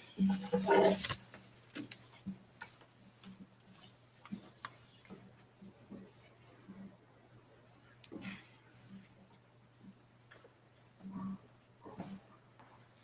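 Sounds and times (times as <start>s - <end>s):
person speaking: 0.2s - 1.2s.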